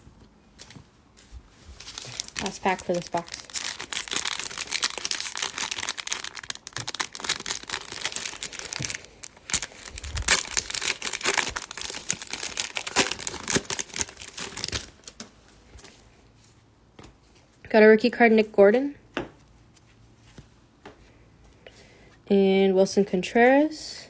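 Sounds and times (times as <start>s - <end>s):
wrapper tearing and crinkling: 1.7s - 15.2s.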